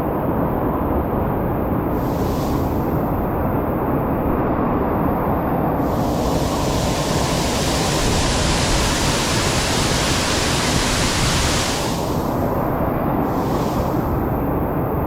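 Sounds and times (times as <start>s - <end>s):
waterfall rushing water: 5.8s - 12.4s, 13.3s - 14.3s.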